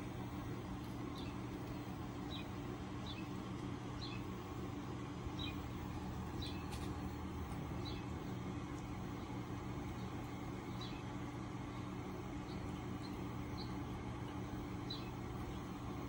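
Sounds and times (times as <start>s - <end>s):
steady low hum: 0.0s - 16.0s
small bird chirping: 1.1s - 4.4s, 5.3s - 6.8s, 7.8s - 8.2s, 9.2s - 13.9s, 14.8s - 15.8s.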